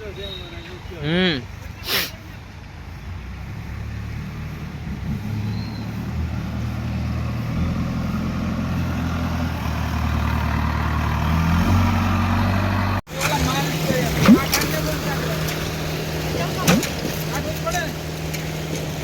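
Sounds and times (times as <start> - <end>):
heavy engine running: 5.9 - 19.0.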